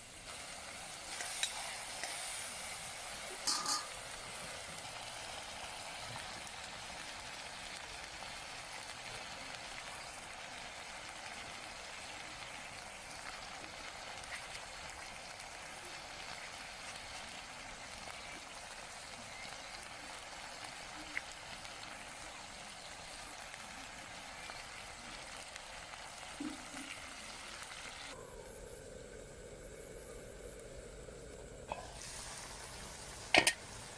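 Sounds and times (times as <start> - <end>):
food sizzling in a pan: 0.0 - 33.9.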